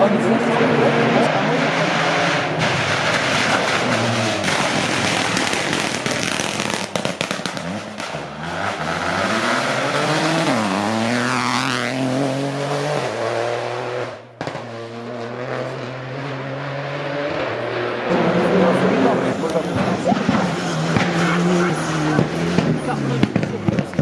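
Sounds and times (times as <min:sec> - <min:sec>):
rally car engine revving: 0:00.0 - 0:24.0
sharp cracks: 0:02.6 - 0:08.8.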